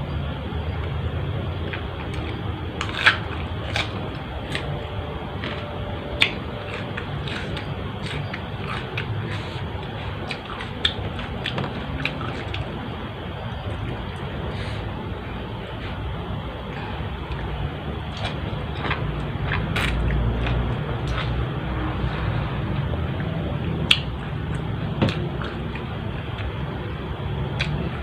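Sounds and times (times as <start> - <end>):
steady background noise: 0.0 - 28.0
food crunching while chewed: 1.6 - 14.9, 16.6 - 22.3, 27.5 - 28.0.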